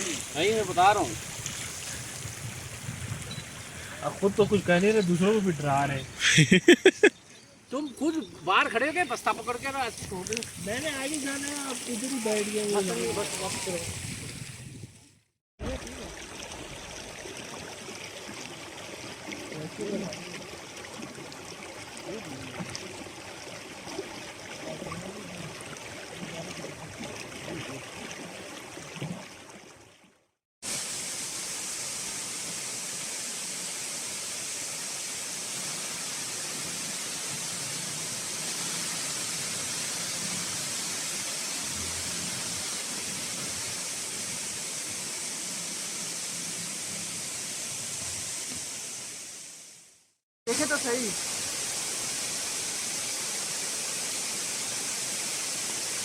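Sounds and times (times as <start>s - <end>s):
fast-flowing water rushing: 0.0s - 6.4s, 7.8s - 14.3s, 30.6s - 49.3s, 50.5s - 56.0s.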